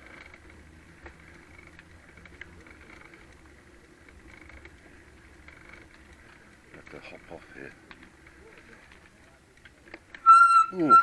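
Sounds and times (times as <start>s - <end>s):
bicycle clicks and rattles: 0.0s - 11.0s.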